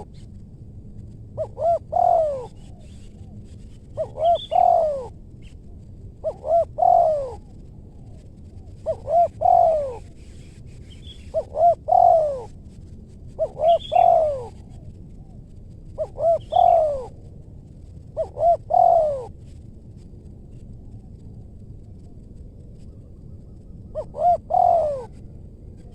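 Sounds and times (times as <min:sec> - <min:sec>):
dove cooing: 0:00.0 - 0:00.2, 0:01.4 - 0:05.5, 0:06.1 - 0:12.7, 0:13.3 - 0:17.3, 0:17.9 - 0:19.4, 0:23.5 - 0:25.9.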